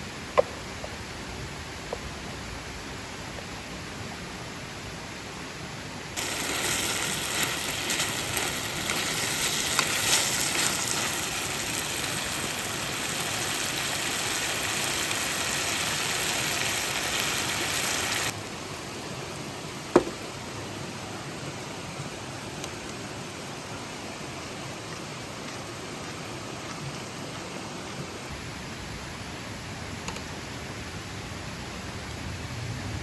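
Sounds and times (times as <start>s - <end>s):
steady background hiss: 0.0s - 33.0s
food sizzling in a hot pan: 6.2s - 18.3s.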